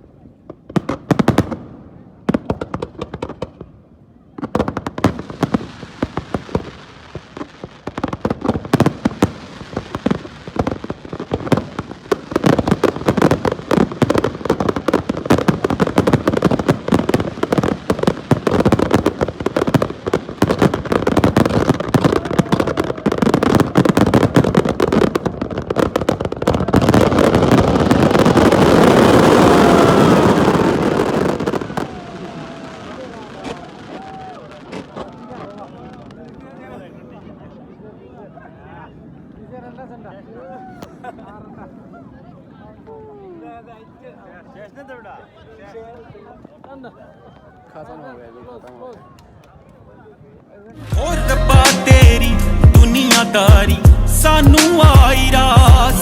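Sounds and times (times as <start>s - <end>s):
fireworks bangs and crackles: 0.0s - 38.3s, 50.4s - 56.0s
fireworks whistles: 26.8s - 35.3s, 51.6s - 52.3s.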